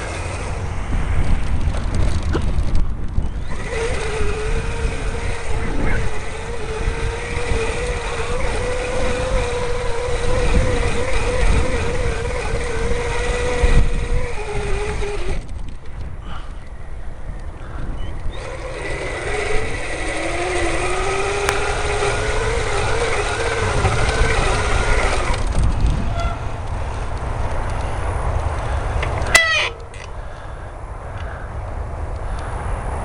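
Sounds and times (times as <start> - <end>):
electric bike motor whining: 0.0 - 32.7
wind rumbling on microphone: 0.0 - 33.0.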